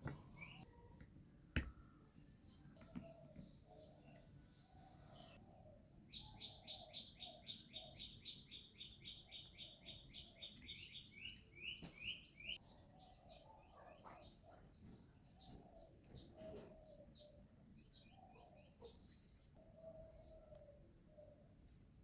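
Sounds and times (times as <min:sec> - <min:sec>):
faint birds chirping: 0:00.0 - 0:22.0.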